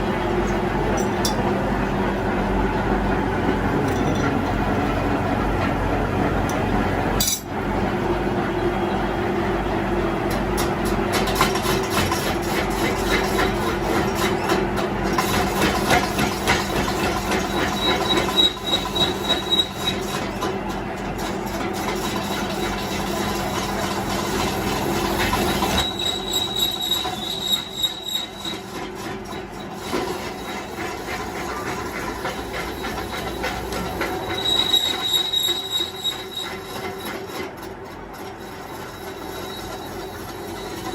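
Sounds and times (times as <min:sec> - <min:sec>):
power tool grinding steel: 0:21.2 - 0:37.6.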